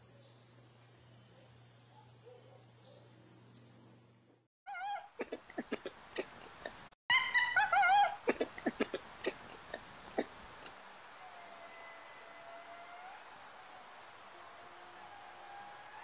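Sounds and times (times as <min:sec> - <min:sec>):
lemur warbling mews: 0:07.1 - 0:10.3.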